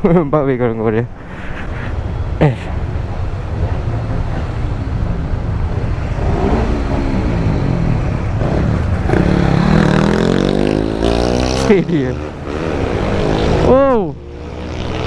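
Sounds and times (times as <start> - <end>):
motorcycle engine accelerating: 4.2 - 15.0.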